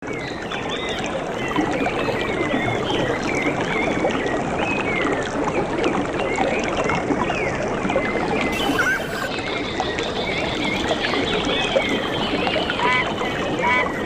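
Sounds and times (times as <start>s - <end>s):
flowing water splashing: 0.0s - 14.0s
small birds chirping: 8.1s - 14.0s.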